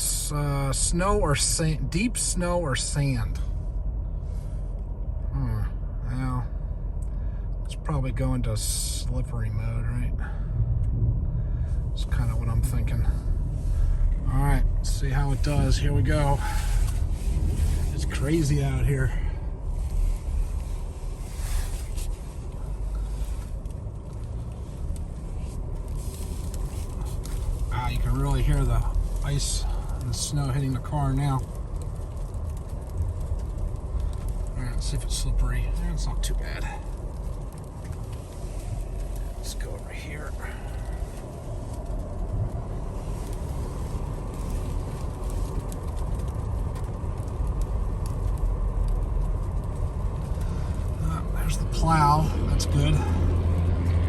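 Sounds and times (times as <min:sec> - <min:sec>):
engine and tyres rumbling on snow: 0:00.0 - 0:54.0
ice ticking on car: 0:11.6 - 0:54.0.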